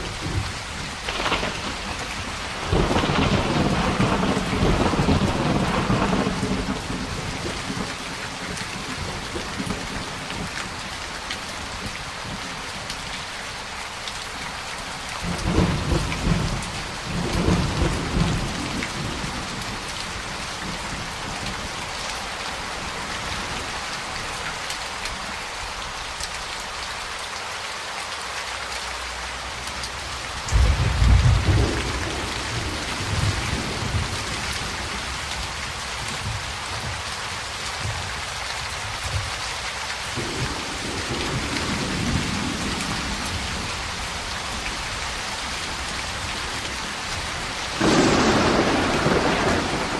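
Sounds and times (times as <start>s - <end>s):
rolling thunder: 0.0s - 8.0s, 30.5s - 35.1s, 47.8s - 49.9s
heavy rain: 0.0s - 49.9s
loud thunderclap: 1.0s - 7.9s, 47.8s - 49.9s.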